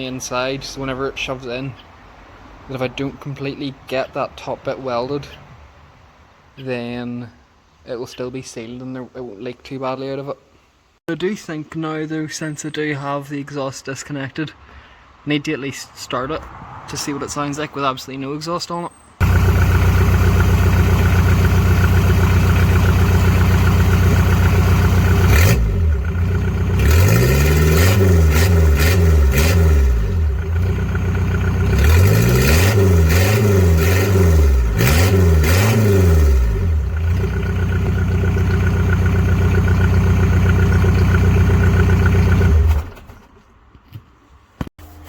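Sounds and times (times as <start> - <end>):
diesel engine idling and revving: 19.2 - 43.2.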